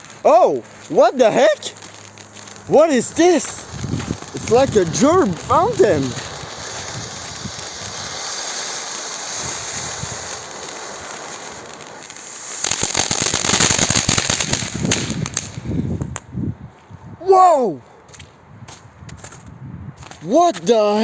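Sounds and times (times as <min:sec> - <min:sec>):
firework fountain hissing: 0:00.0 - 0:16.0
firework crackling: 0:00.0 - 0:16.3.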